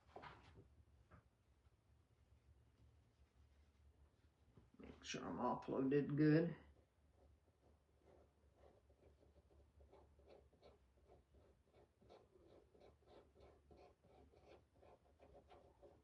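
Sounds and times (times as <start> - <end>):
stencil brush scratching: 6.7 - 16.0.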